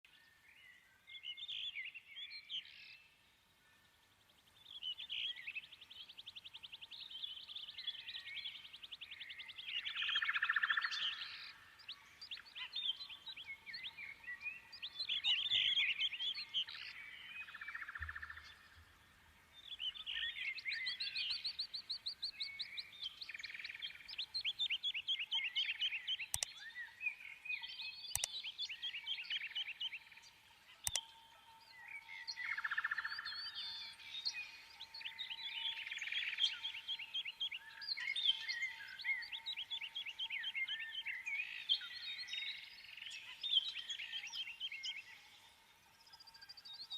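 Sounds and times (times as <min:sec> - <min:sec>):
birds chirping and trilling: 0:00.1 - 0:46.9
sharp clicks: 0:26.3 - 0:26.6, 0:28.1 - 0:28.5, 0:30.8 - 0:31.2.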